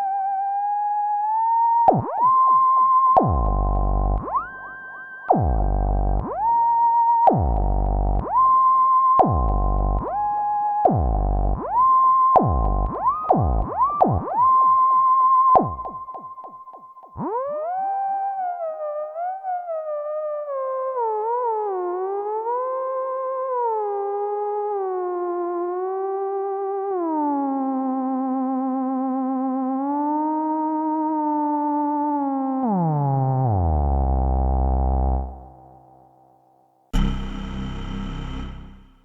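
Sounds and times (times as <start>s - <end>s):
deep low synth tone: 3.2s - 6.6s, 7.3s - 8.5s, 9.2s - 11.8s, 12.4s - 13.9s, 37.0s - 39.0s
synthesizer lead notes: 3.2s - 14.4s, 37.0s - 39.0s.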